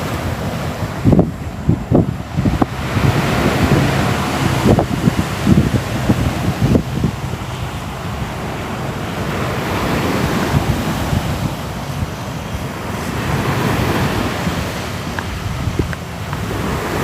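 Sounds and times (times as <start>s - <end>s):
waves washing onto shore: 0.0s - 17.0s.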